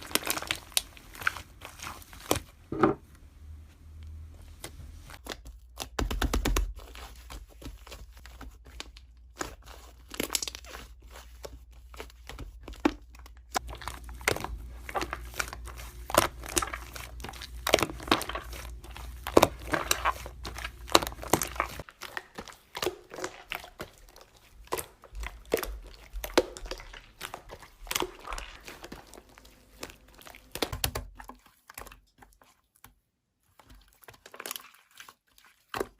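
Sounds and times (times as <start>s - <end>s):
slime squished by hand: 0.0s - 2.6s, 12.6s - 32.3s.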